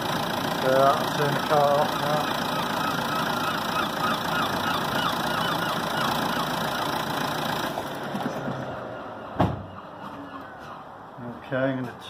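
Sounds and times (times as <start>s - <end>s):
car engine running: 0.0s - 8.8s
air conditioning running: 0.0s - 9.6s
sharp thump: 9.4s - 9.7s.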